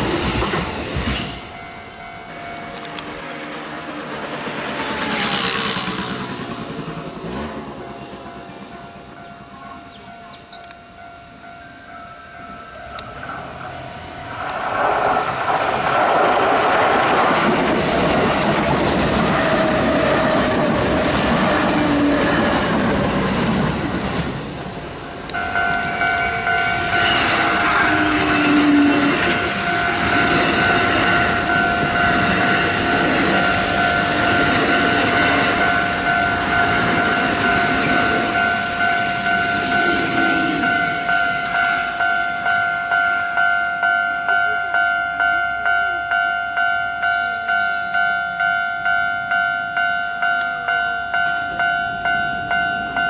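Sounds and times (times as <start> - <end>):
electric train running past: 0.0 - 53.0
trains passing: 0.0 - 53.0
level crossing bell ringing: 25.3 - 53.0.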